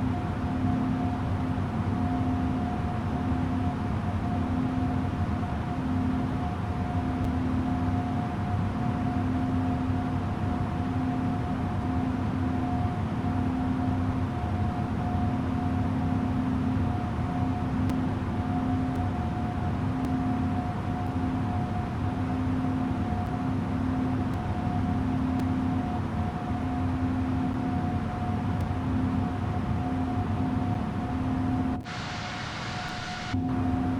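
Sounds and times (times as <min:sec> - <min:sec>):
jet engines running: 0:19.0 - 0:33.9.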